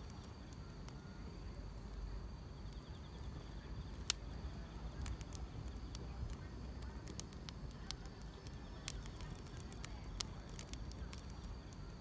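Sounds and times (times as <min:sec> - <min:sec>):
crickets trilling: 0:00.0 - 0:12.0
firewood crackle: 0:00.0 - 0:12.0
wood fire rumbling: 0:00.0 - 0:12.0.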